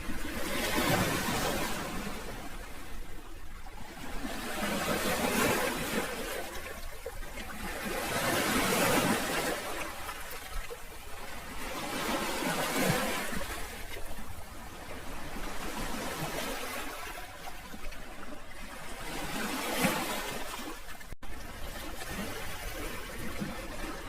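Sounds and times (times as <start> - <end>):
sea waves washing ashore: 0.0 - 24.0.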